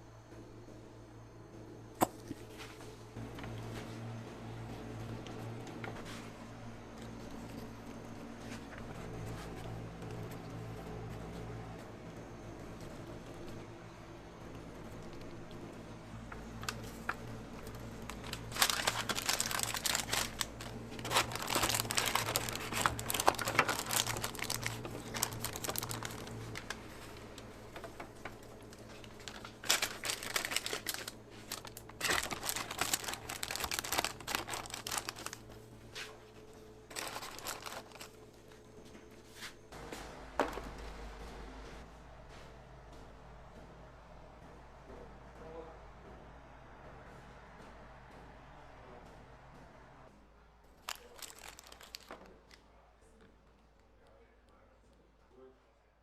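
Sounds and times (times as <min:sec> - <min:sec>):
packaging crinkling and rustling: 0:16.5 - 0:35.6, 0:36.9 - 0:38.6, 0:50.8 - 0:52.6.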